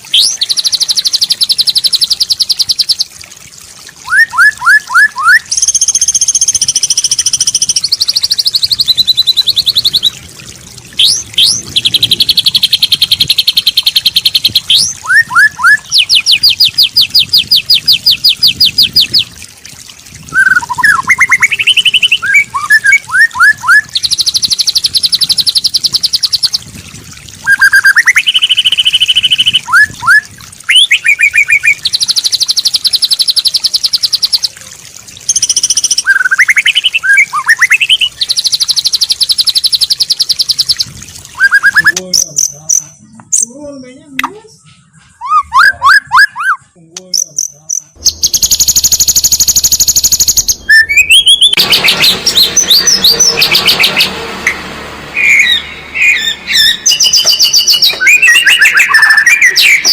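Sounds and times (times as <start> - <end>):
bird song whistled phrases: 4.0 - 10.2, 11.0 - 19.3, 20.3 - 26.6, 27.4 - 34.6, 35.3 - 42.0, 44.3 - 47.3, 49.6 - 54.1, 55.2 - 59.9.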